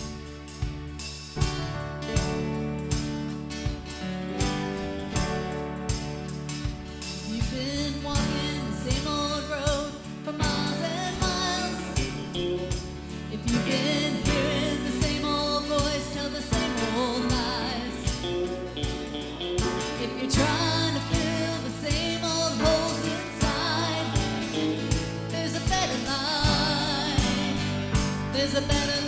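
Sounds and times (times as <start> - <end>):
gospel band music: 0.0 - 29.0
guitar: 0.0 - 29.0
person singing with vibrato: 7.3 - 19.1, 19.7 - 29.0.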